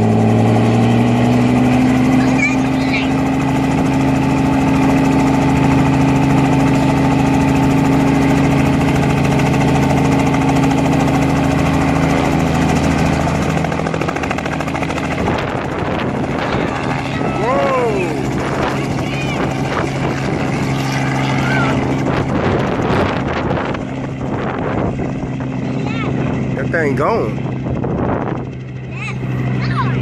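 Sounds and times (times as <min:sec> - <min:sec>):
helicopter turbine and rotor: 0:00.0 - 0:30.0.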